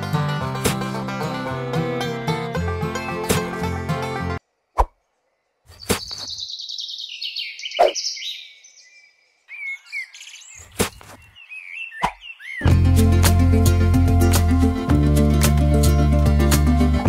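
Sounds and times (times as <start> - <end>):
short bird chirps: 4.8 - 12.6.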